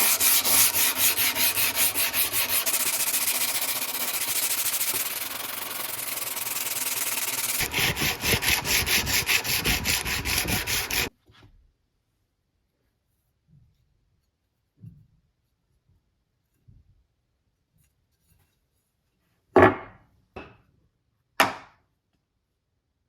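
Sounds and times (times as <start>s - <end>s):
hand sanding strokes: 0.0s - 11.1s.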